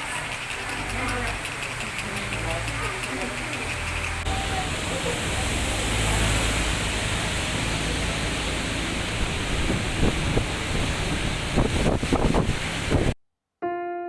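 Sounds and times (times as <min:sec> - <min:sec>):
steady rushing noise: 0:03.6 - 0:13.2.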